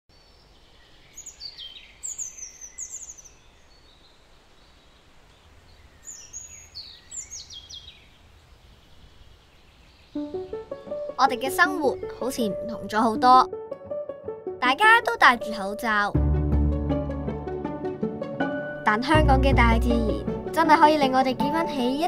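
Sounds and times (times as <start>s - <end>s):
small bird singing: 0.1s - 13.4s.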